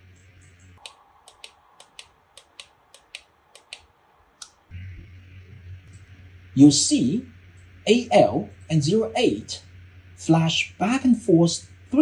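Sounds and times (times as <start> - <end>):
low hum: 0.0 - 12.0
heater buttons clicking: 0.4 - 4.6.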